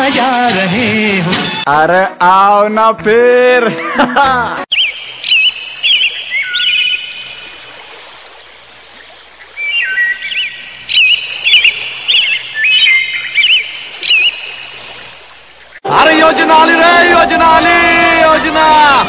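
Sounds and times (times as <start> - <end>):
bird chirping with echo: 9.7 - 14.6.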